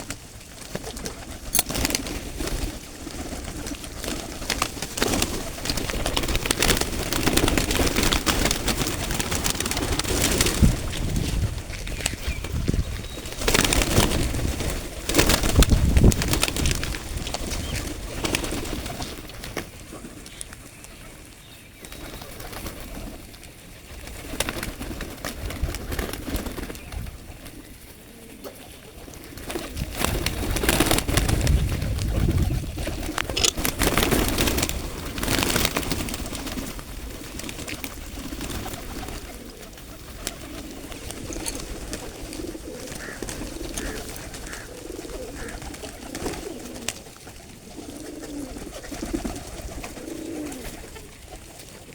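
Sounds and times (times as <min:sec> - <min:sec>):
rustling noise: 0:00.0 - 0:19.4
pigeons cooing: 0:00.0 - 0:51.9.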